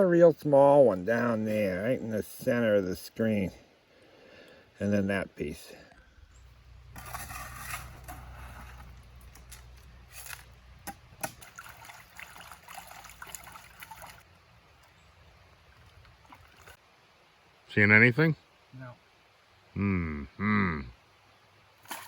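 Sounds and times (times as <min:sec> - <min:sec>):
river water trickling: 0:00.0 - 0:19.8, 0:21.0 - 0:22.0
low steady hum: 0:00.6 - 0:17.3.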